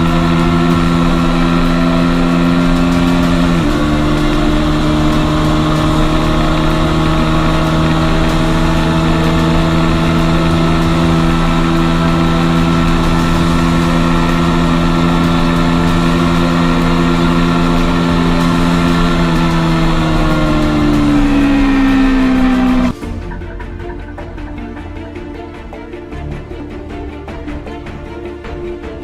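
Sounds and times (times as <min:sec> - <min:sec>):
motorcycle engine at high revs: 0:00.0 - 0:23.0.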